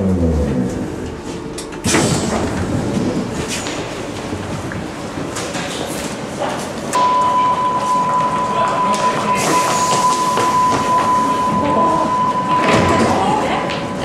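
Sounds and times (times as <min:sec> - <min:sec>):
train rumbling and knocking: 0:00.0 - 0:07.0, 0:08.2 - 0:14.0
steady high warning beep: 0:07.0 - 0:14.0.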